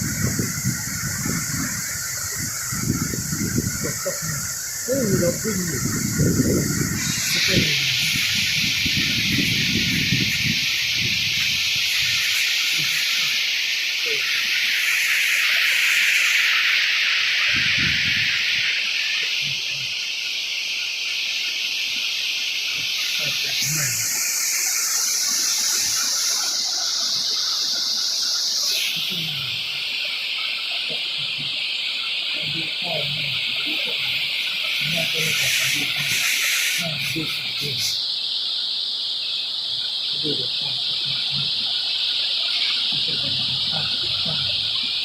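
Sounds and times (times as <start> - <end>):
heavy rain pouring: 0.0 - 20.0, 22.7 - 38.0, 39.7 - 45.0
rain splashes: 39.4 - 45.0.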